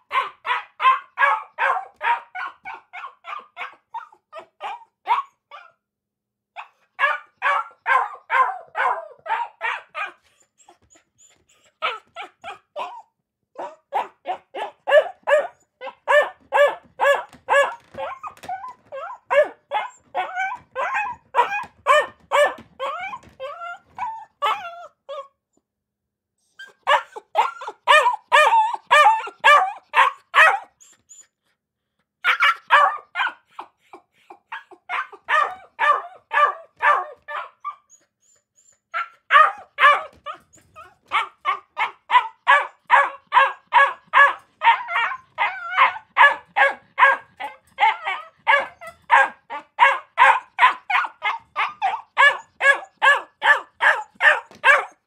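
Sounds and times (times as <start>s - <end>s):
dog barking rapidly: 0.1s - 5.3s, 6.6s - 10.2s, 13.6s - 18.2s, 19.3s - 23.2s, 26.9s - 30.7s, 32.2s - 33.7s, 34.5s - 37.8s, 39.0s - 40.4s, 41.0s - 55.0s.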